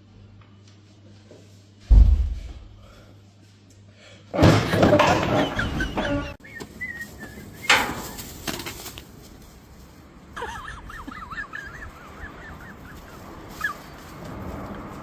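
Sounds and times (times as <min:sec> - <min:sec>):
sharp bang or knock: 0:01.9 - 0:02.8
wavering bird calls: 0:05.8 - 0:08.2, 0:10.4 - 0:14.2.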